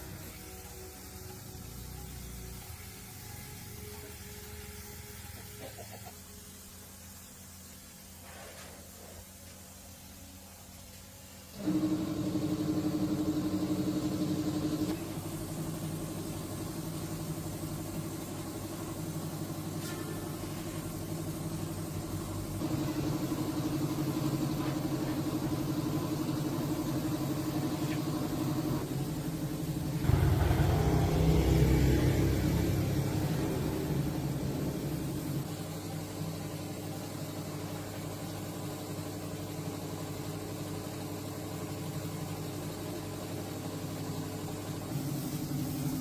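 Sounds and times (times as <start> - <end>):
old tractor engine running: 21.2 - 36.8.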